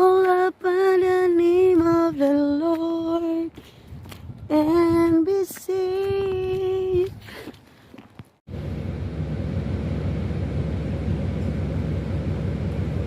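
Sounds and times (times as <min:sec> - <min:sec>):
woman singing unaccompanied: 0:00.0 - 0:03.6, 0:04.5 - 0:07.2.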